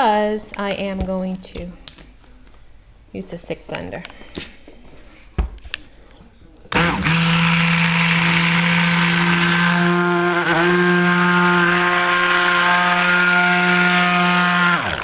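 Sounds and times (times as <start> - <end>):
stick blender motor whine: 6.7 - 15.0.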